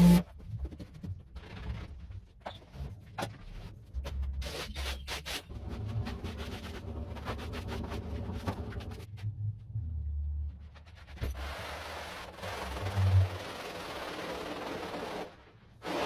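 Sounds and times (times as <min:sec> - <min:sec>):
carpet being scrubbed: 0:00.0 - 0:00.2.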